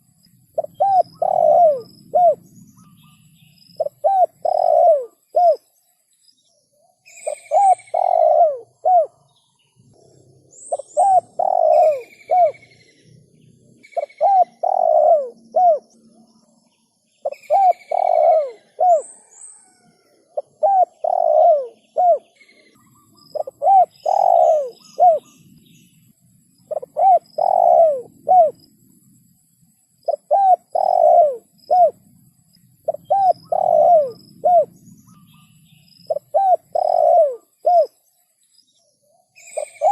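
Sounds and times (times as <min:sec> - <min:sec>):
dove cooing: 0:00.0 - 0:03.0, 0:03.8 - 0:05.7, 0:07.1 - 0:09.3, 0:10.0 - 0:16.1, 0:17.2 - 0:25.4, 0:26.6 - 0:28.7, 0:30.0 - 0:32.0, 0:32.8 - 0:38.0, 0:39.4 - 0:39.9
small birds chirping: 0:00.0 - 0:39.9.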